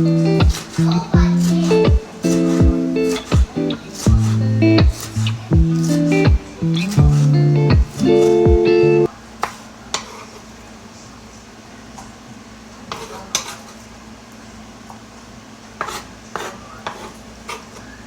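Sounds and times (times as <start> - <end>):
food sizzling: 0.0 - 9.1
metal utensil scraping in a pan: 0.6 - 6.2.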